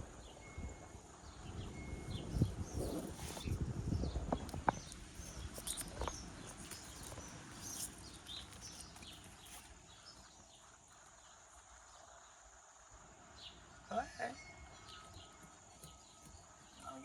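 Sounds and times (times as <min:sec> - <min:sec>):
small birds chirping: 0:00.0 - 0:17.0
rustling: 0:02.4 - 0:11.2.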